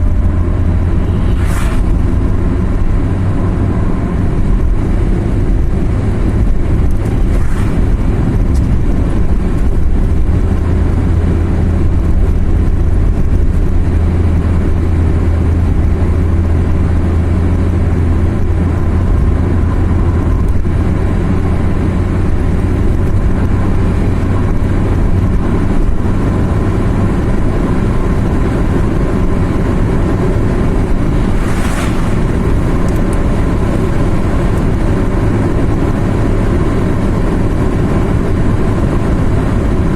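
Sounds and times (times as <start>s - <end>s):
car engine drone: 0.0s - 39.9s
tyre and road noise: 0.0s - 39.9s
brief rush of noise: 0.9s - 2.3s, 30.8s - 34.2s.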